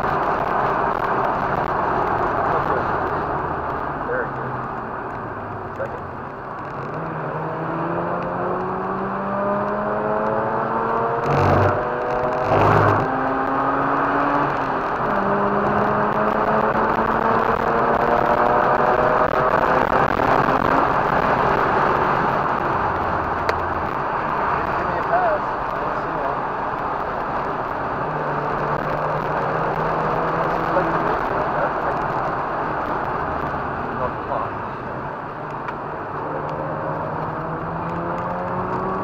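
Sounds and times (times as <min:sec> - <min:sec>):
rotary engine revving: 0:06.9 - 0:22.6, 0:36.0 - 0:39.0.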